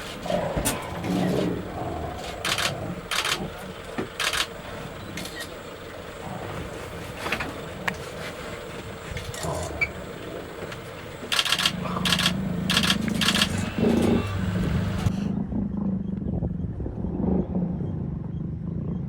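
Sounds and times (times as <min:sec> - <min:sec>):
lion growling: 0:00.0 - 0:15.1
lion huffing: 0:00.0 - 0:15.1.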